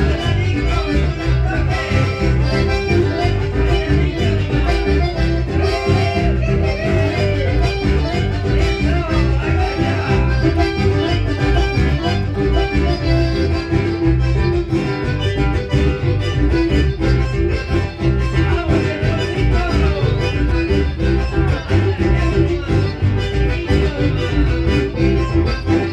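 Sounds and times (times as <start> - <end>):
band playing latin dance music: 0.0 - 25.9
guitar: 0.0 - 25.9
pulsing bass beat: 0.0 - 25.9.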